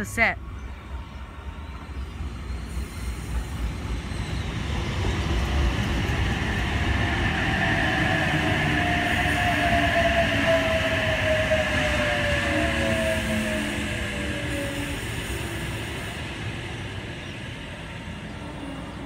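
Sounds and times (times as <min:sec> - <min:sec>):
electric train pulling in: 0:00.5 - 0:19.0
train whine falling in pitch: 0:07.5 - 0:15.9.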